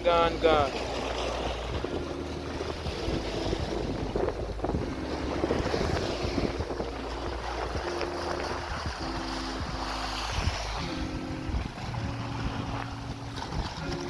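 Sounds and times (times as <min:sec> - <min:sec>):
surf washing against rocks: 0:00.0 - 0:14.0
wind buffeting microphone: 0:00.0 - 0:14.0.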